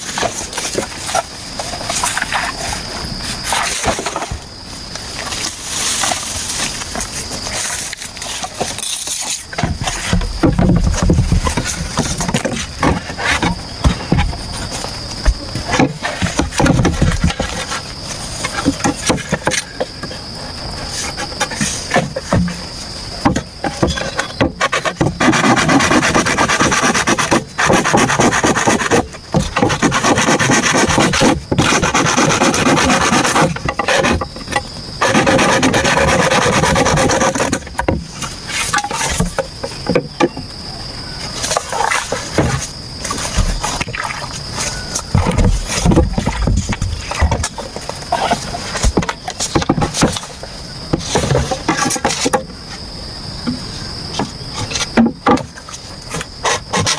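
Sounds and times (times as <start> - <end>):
insects buzzing: 0.0 - 56.9
blade scraping bamboo: 5.4 - 20.2, 23.2 - 40.0, 56.1 - 56.9.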